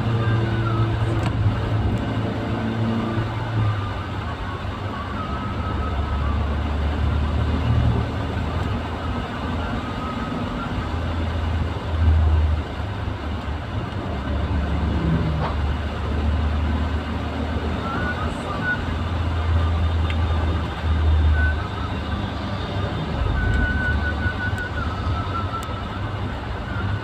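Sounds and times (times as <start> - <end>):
vehicle engine and road noise: 0.0 - 27.0.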